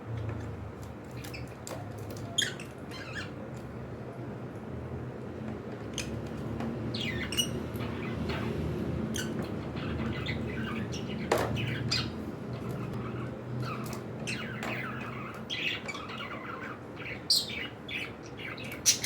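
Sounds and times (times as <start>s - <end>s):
cockatiels chirping and squawking: 2.2s - 3.3s, 6.9s - 19.0s.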